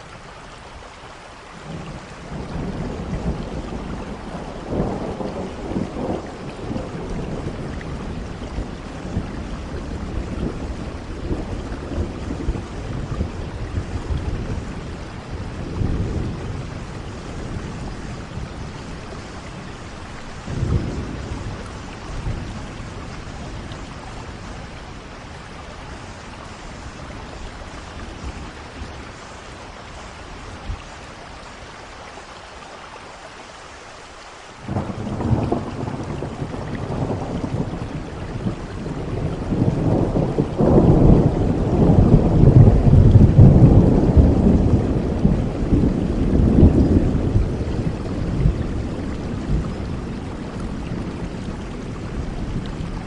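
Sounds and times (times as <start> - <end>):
steady rain: 0.0 - 53.0
thunder rumbling: 1.6 - 31.3, 34.6 - 53.0.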